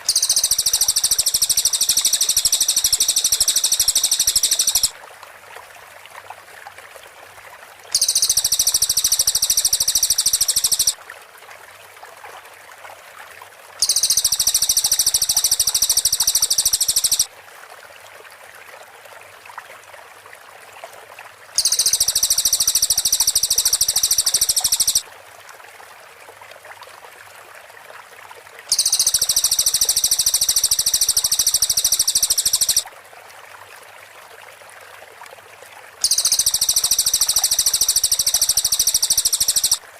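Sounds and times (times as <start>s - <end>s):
bird song fast rattling notes: 0.0s - 4.9s, 8.0s - 10.9s, 13.8s - 17.3s, 21.6s - 25.0s, 28.7s - 32.8s, 36.0s - 39.8s.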